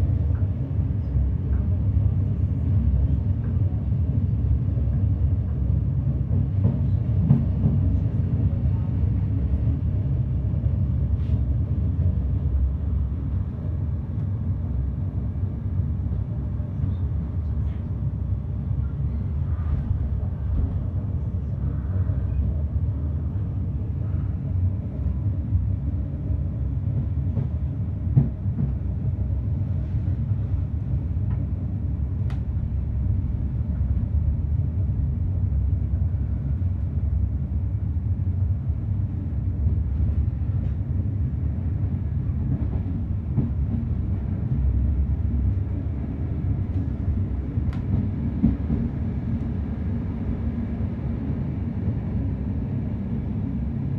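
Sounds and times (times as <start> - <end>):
train wheels rumbling on rail: 0.0 - 53.9.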